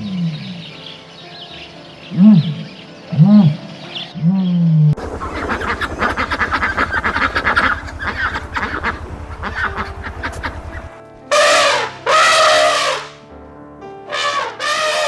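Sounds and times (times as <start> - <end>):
ducks quacking: 5.0 - 13.1
loud single duck call: 11.3 - 13.1, 14.1 - 15.0.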